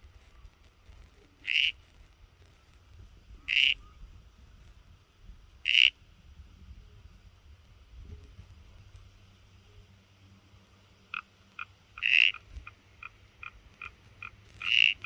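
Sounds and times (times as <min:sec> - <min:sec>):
faint low background rumble: 0:00.0 - 0:15.0
animal giving raspy calls: 0:01.4 - 0:01.8, 0:03.4 - 0:03.8, 0:05.7 - 0:05.9, 0:11.1 - 0:15.0.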